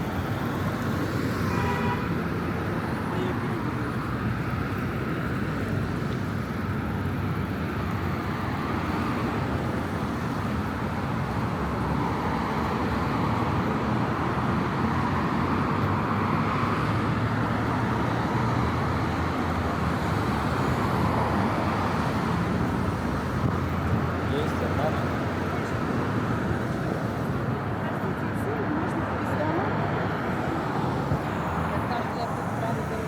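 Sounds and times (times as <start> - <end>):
city road traffic: 0.0 - 33.0.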